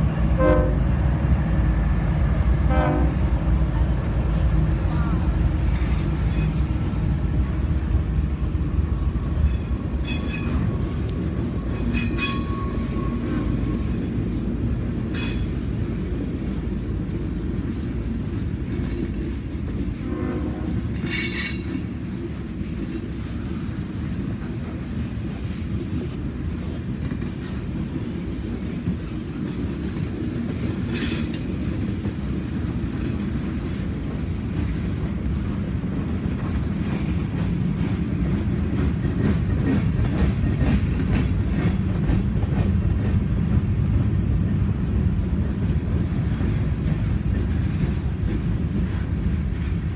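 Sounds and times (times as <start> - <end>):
freight train rumbling past: 0.0 - 49.9
metallic screeches and clanks: 9.3 - 11.0, 11.6 - 13.2.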